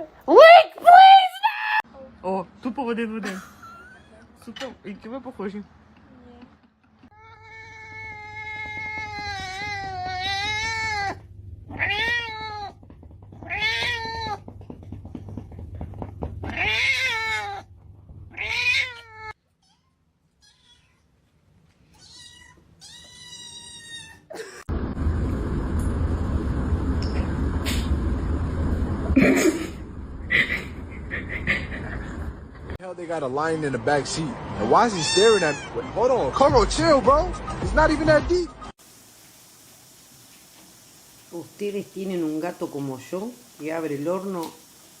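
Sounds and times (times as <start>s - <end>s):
cat yowling: 7.1s - 14.4s, 16.4s - 17.7s, 18.3s - 21.0s, 22.0s - 24.3s, 34.9s - 35.9s.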